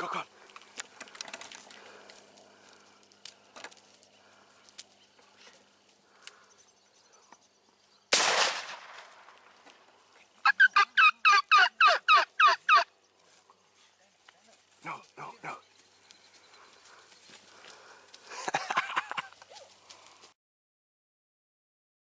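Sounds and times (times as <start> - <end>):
shotgun blast: 8.1 - 9.3
wild turkey calls: 10.4 - 12.9.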